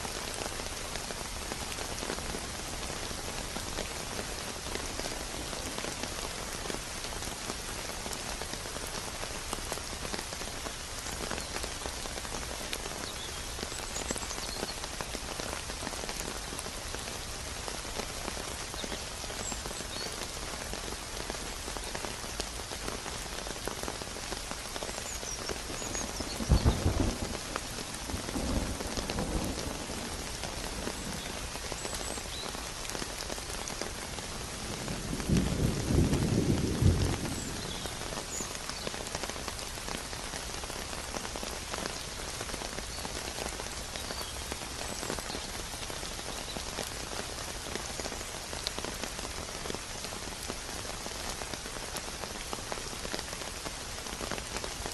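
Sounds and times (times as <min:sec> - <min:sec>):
steady rain falling: 0:00.0 - 0:54.9
low rumbles of thunder: 0:26.3 - 0:31.4, 0:34.6 - 0:38.0.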